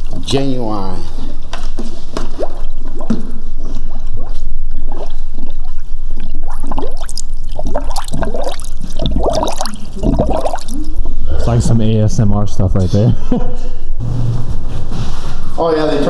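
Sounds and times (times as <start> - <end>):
coolant glugging from a jug: 0.0 - 11.5.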